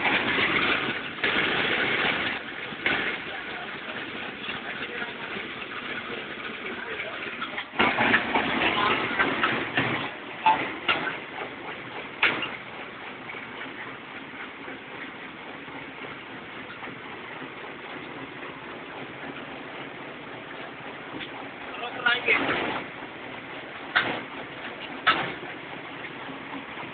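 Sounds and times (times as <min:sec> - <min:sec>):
machine running: 0:00.0 - 0:26.9
sharp knocks: 0:23.9 - 0:24.3, 0:25.0 - 0:25.6.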